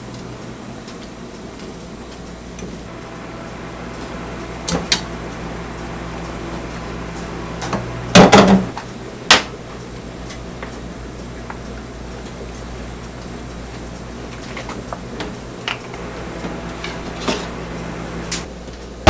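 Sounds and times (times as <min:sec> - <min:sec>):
steady low hum: 0:02.8 - 0:08.8, 0:15.9 - 0:18.5.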